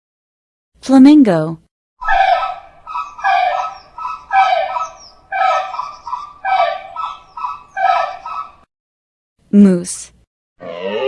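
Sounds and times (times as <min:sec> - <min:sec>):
flamingo honking calls: 0:02.0 - 0:08.6.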